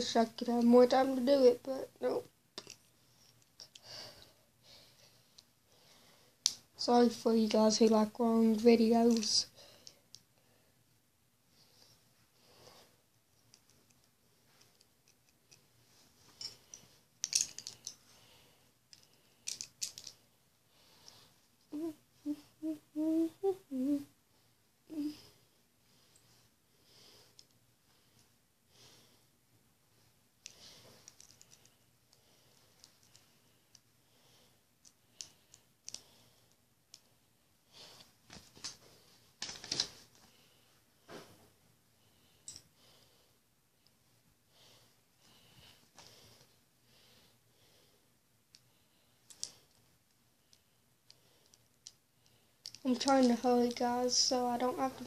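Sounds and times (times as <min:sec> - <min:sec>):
faint clicks of handling: 0:18.9 - 0:20.2, 0:30.4 - 0:31.8, 0:34.8 - 0:37.1, 0:49.3 - 0:49.9, 0:50.5 - 0:53.8.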